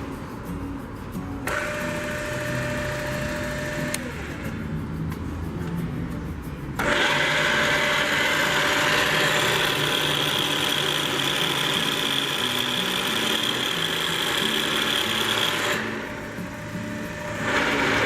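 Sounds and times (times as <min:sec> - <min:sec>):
drill mechanical whirring: 0:01.5 - 0:04.4, 0:06.8 - 0:18.0
low electric motor hum: 0:01.5 - 0:04.7, 0:06.8 - 0:18.0.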